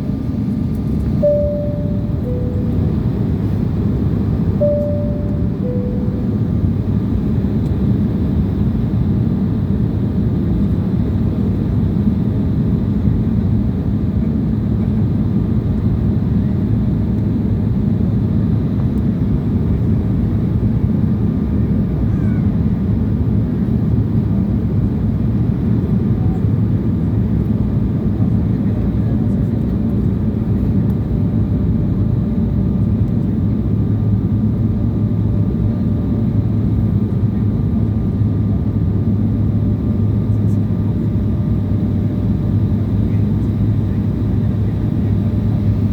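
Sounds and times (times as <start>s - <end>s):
jet airliner cabin rumble: 0.0s - 45.9s
faint steady tones: 1.2s - 7.2s.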